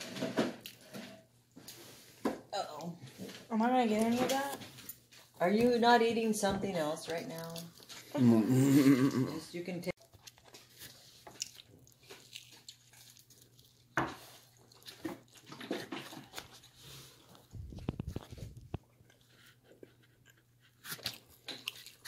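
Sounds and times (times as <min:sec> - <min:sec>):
people chewing pizza: 0:07.0 - 0:09.4, 0:10.0 - 0:22.0.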